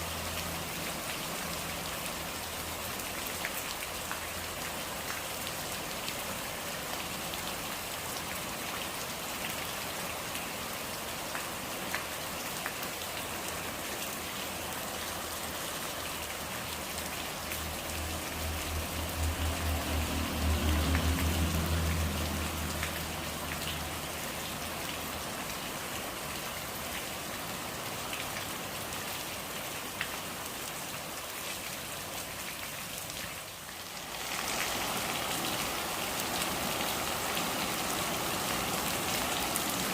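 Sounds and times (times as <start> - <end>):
steady rain: 0.0 - 39.9
raindrops ticking: 16.7 - 25.6.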